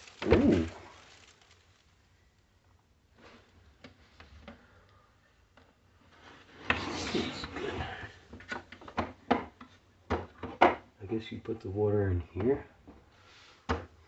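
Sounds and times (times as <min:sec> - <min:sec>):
packaging rustle and scrape: 0:00.0 - 0:02.1.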